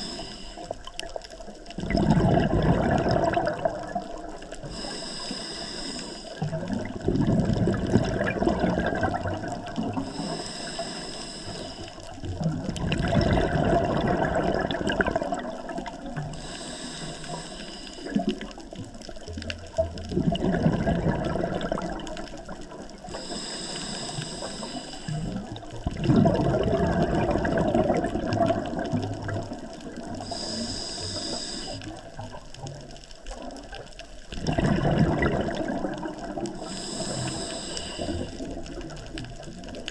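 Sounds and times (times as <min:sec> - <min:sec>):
regulator hiss on inhale: 0:00.0 - 0:01.0, 0:04.3 - 0:06.5, 0:09.9 - 0:12.2, 0:16.2 - 0:18.6, 0:23.0 - 0:25.6, 0:29.5 - 0:32.3, 0:36.5 - 0:39.2
exhaled bubbles rushing: 0:00.8 - 0:04.6, 0:06.4 - 0:10.1, 0:12.0 - 0:16.4, 0:18.1 - 0:23.1, 0:25.1 - 0:30.4, 0:32.0 - 0:37.4.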